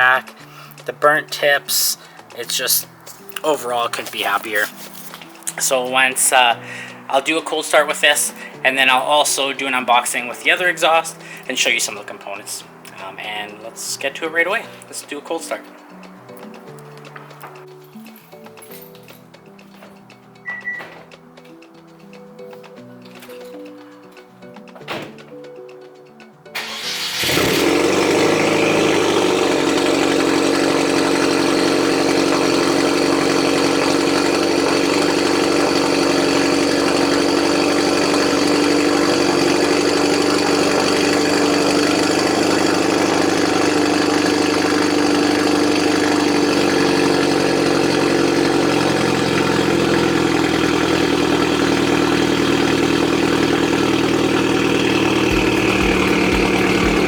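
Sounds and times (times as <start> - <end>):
car engine idling loudly: 26.6 - 57.0.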